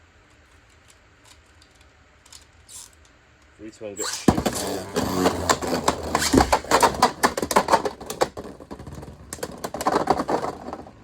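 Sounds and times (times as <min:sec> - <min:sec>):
plastic tops clashing: 0:04.3 - 0:10.8.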